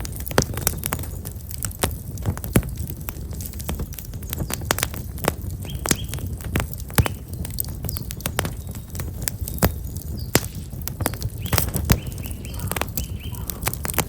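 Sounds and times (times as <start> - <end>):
open fire crackling: 0.0 - 14.0
faint birds chirping: 5.6 - 14.0.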